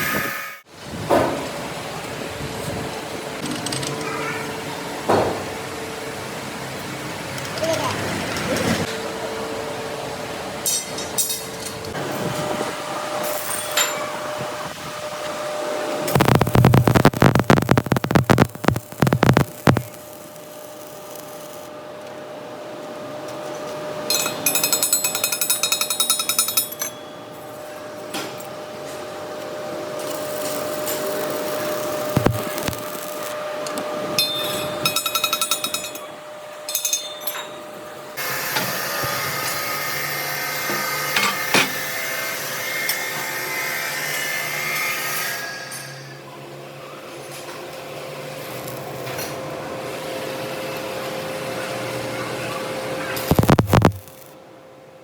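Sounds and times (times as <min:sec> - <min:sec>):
machine hum: 0:15.8 - 0:21.7, 0:29.2 - 0:36.5.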